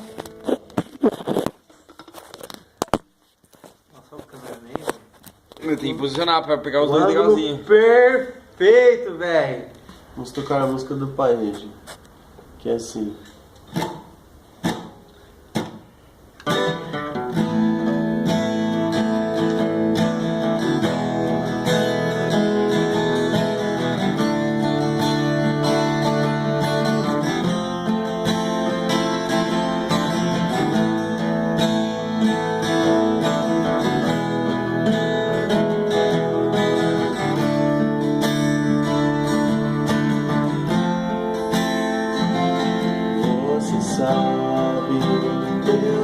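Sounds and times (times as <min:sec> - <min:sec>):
acoustic guitar strummed: 0:00.0 - 0:01.6, 0:13.7 - 0:46.0.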